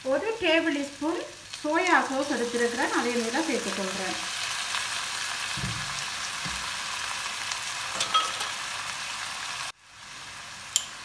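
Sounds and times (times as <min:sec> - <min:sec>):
vegetables sizzling in hot oil: 0:00.0 - 0:11.0
light knock on wok: 0:05.6 - 0:06.6.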